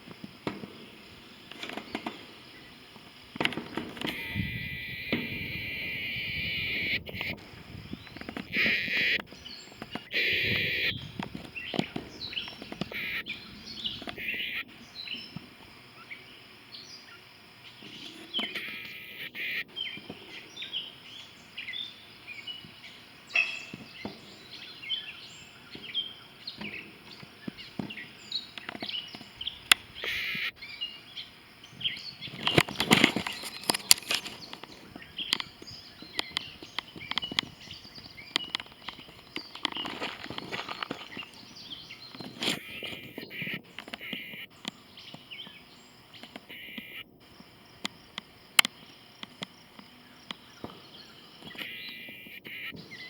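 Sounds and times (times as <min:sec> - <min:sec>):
wild birds chirping: 0:00.0 - 0:53.0
sharp clicks: 0:03.4 - 0:13.3, 0:32.4 - 0:37.5, 0:38.3 - 0:41.4, 0:47.8 - 0:50.4.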